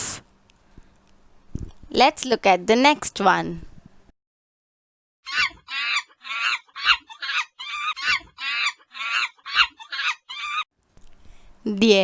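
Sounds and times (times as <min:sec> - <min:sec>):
monkey screeching calls: 0:05.3 - 0:10.6.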